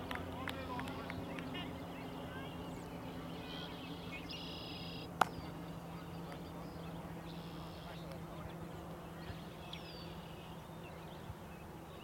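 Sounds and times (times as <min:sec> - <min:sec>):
steady low hum: 0:00.0 - 0:12.0
bird giving buzzy calls: 0:01.2 - 0:08.0.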